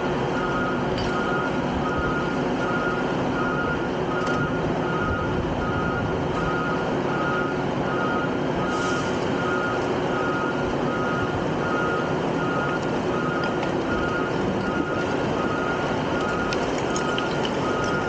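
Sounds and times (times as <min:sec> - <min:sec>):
diesel engine running: 0:00.0 - 0:18.0
reversing alarm beeping: 0:00.3 - 0:18.0
machinery noise: 0:06.4 - 0:18.0.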